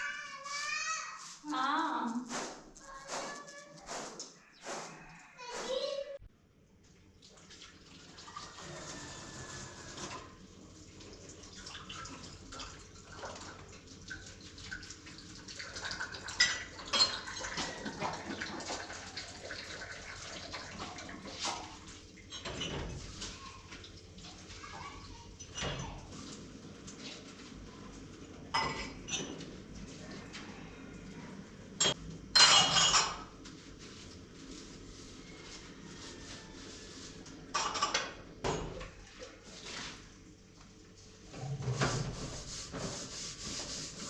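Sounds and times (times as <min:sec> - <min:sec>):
water pouring and splashing: 0:07.2 - 0:22.0.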